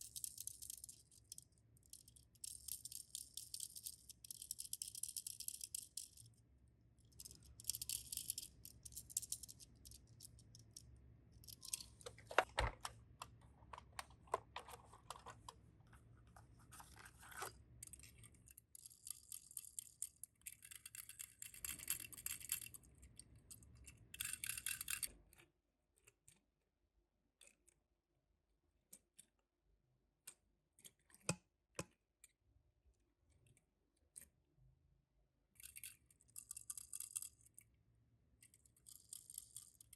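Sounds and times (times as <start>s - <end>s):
toy cars rattling: 7.2s - 12.6s.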